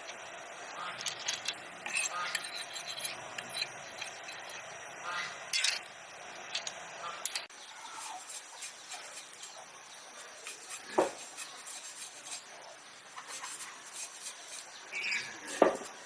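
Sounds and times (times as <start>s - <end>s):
small objects clinking and rubbing: 0.0s - 4.9s, 6.4s - 16.0s.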